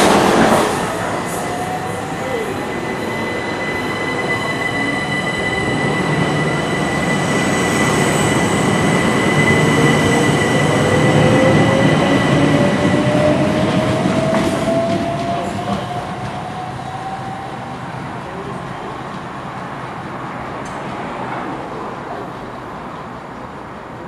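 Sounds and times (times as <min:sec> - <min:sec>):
rising whine: 0:00.0 - 0:15.4
train passing: 0:00.0 - 0:24.0.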